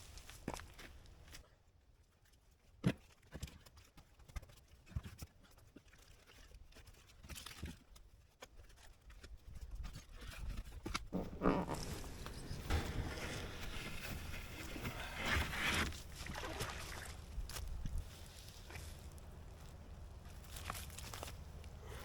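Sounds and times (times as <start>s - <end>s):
scuffle: 9.7s - 22.0s
footsteps: 11.1s - 19.2s.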